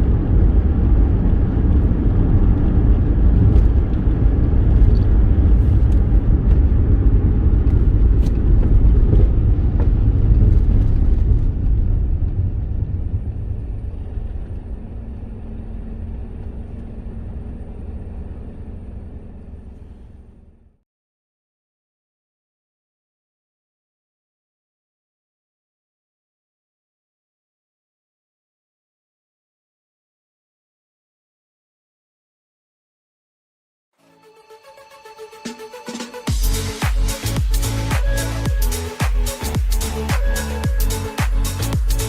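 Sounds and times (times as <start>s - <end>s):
car engine and road noise: 0.0s - 20.8s, 34.3s - 42.0s.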